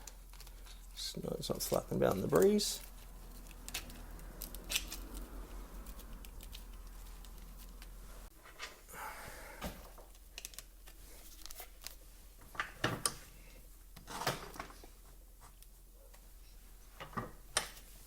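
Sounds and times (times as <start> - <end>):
tools and small parts clicking: 1.7 - 8.0.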